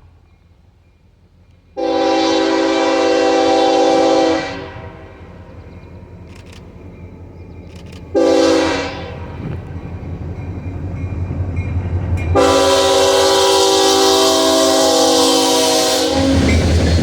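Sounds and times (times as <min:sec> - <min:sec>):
locomotive air horn: 0:01.8 - 0:05.3, 0:08.2 - 0:09.5, 0:12.4 - 0:16.9
diesel engine rumbling: 0:03.1 - 0:17.0.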